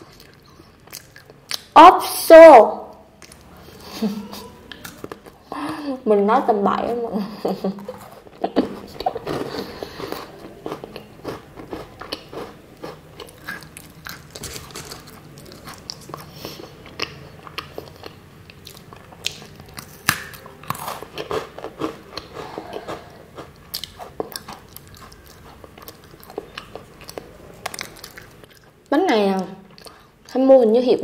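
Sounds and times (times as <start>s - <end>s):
crunching and chewing biscuit: 0.0s - 1.7s, 7.6s - 28.9s.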